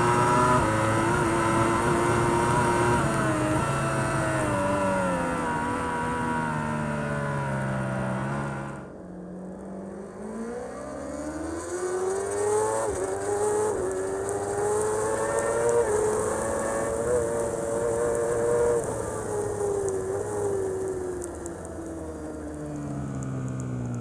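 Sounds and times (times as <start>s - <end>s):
motorcycle engine accelerating: 0.0s - 24.0s
gear upshifts: 10.5s - 24.0s.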